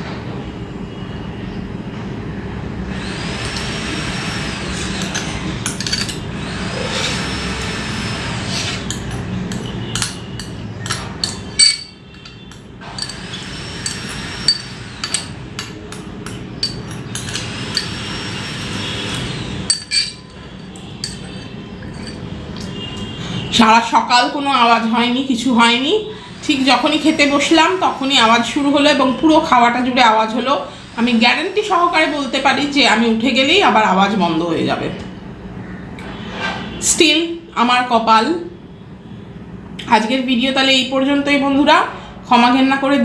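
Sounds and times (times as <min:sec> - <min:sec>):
steady mechanical noise: 0:00.0 - 0:33.8
knocks and clinks: 0:05.0 - 0:06.4, 0:08.9 - 0:18.1, 0:19.1 - 0:23.1.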